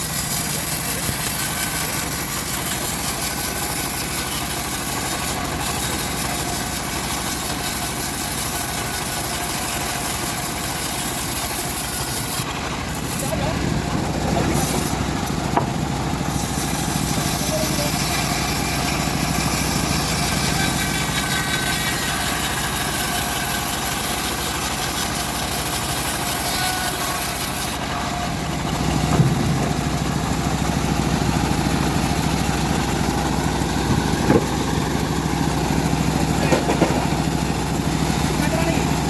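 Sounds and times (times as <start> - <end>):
bandsaw mill engine running: 0.0 - 39.0
sharp knocks: 15.5 - 15.8, 29.0 - 29.9, 34.2 - 34.7, 36.4 - 37.1.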